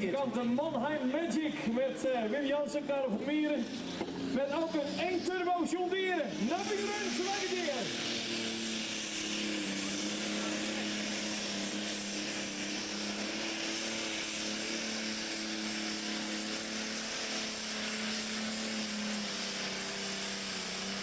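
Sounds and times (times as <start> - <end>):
strong hiss: 4.4 - 21.0.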